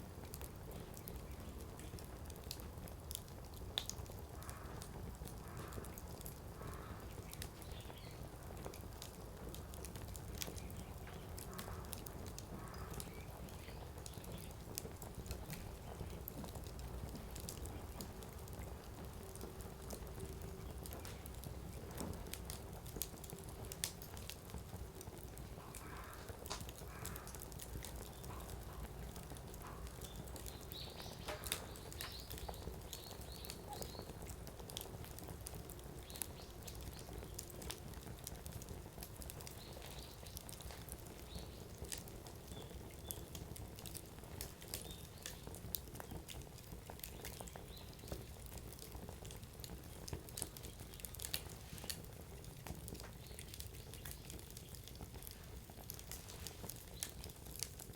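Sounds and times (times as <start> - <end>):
firewood crackling and popping: 0.0 - 57.9
low rumble of flames: 0.0 - 57.9.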